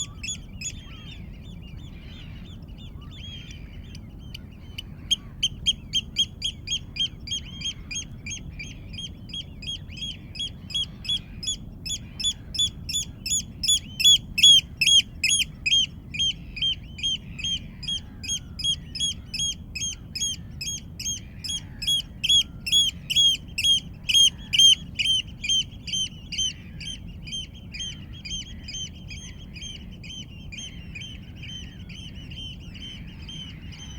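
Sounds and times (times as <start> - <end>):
other birds chirping: 0.0 - 33.9
bird calling repeated notes: 3.4 - 33.9.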